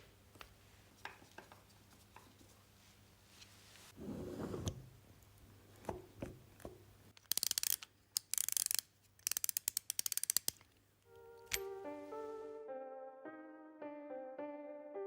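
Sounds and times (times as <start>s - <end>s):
ratchet wrench clicking: 7.2s - 10.6s
piano music: 11.1s - 15.0s.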